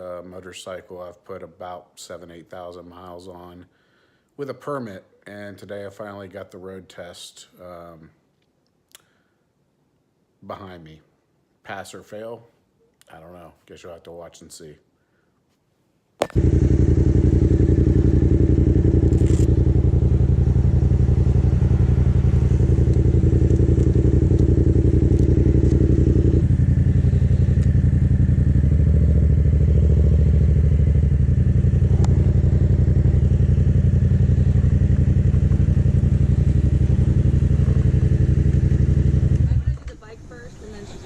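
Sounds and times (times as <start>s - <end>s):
motorcycle engine running: 16.2s - 40.0s.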